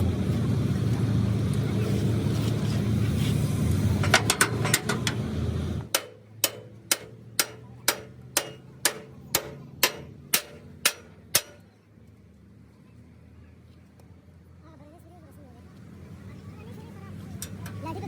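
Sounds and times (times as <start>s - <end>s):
loud low rumble with clicks: 0.0s - 12.4s
sharp ringing knocks: 5.9s - 11.7s.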